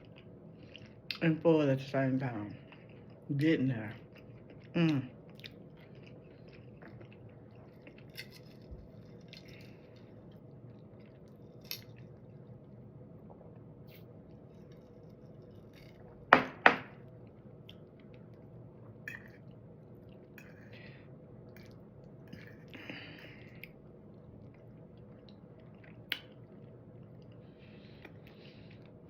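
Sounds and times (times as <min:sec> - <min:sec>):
person chewing: 0:00.0 - 0:01.2, 0:02.6 - 0:03.3, 0:04.0 - 0:12.6.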